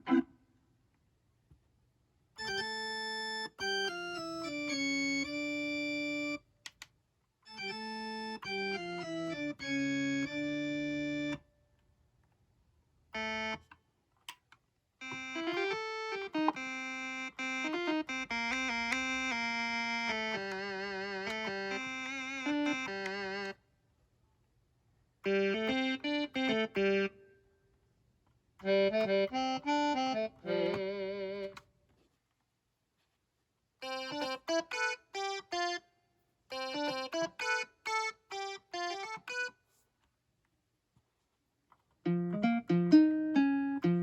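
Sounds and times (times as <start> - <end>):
keyboard playing chords: 2.4 - 6.5, 7.5 - 11.5, 13.2 - 13.8, 15.0 - 23.6, 25.2 - 27.4, 28.6 - 31.6, 33.8 - 39.6, 42.1 - 44.0.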